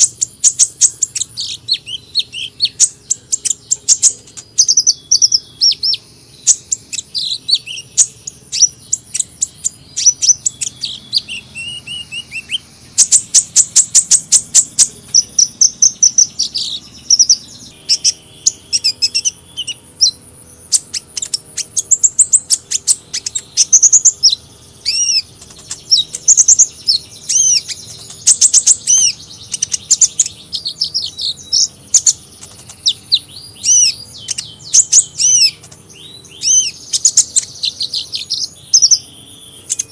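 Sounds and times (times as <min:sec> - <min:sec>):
sharp bird chips: 0:00.0 - 0:39.9
sunbirds chirping and twittering: 0:00.0 - 0:39.9.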